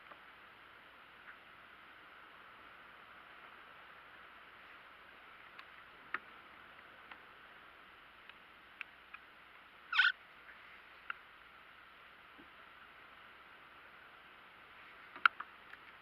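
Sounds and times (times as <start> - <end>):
faint hiss: 0.0 - 16.0
short high squeak: 9.9 - 10.2.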